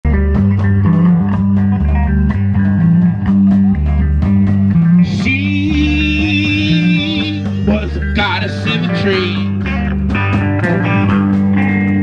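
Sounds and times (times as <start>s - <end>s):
bass guitar line: 0.0s - 12.0s
guitar: 0.0s - 12.0s
steady beat of sharp strokes: 2.7s - 11.6s.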